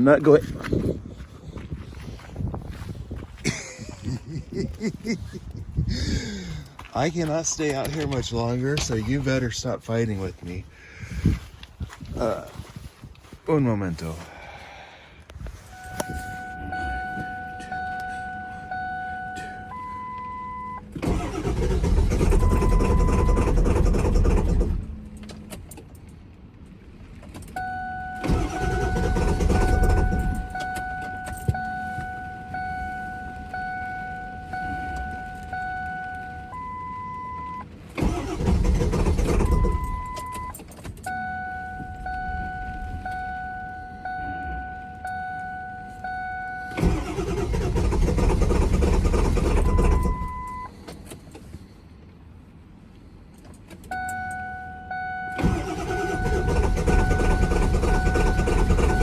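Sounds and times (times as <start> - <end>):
dashboard warning chime: 15.6 - 23.6, 27.4 - 50.9, 53.9 - 59.0
short high beep: 15.7 - 20.8, 39.5 - 47.5
engine starter cranking: 20.7 - 26.0, 27.2 - 32.5, 37.5 - 41.2, 46.6 - 51.5, 55.3 - 59.0.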